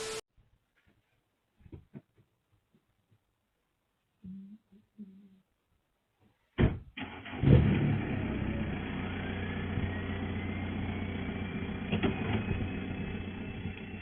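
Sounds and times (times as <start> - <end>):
vehicle engine and road noise: 7.0 - 14.0
faint rising whine: 8.5 - 14.0.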